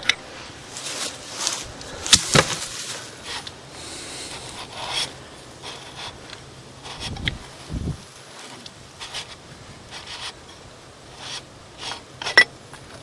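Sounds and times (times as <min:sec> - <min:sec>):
threads scraping and rubbing: 0:00.4 - 0:06.2.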